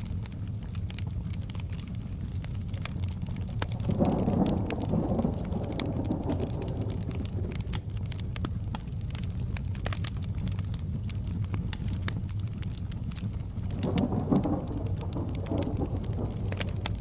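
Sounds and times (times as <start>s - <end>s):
fireplace crackling: 0.0s - 17.0s
rain rumble: 0.0s - 17.0s
thunder rolling: 3.6s - 9.2s, 13.4s - 17.0s.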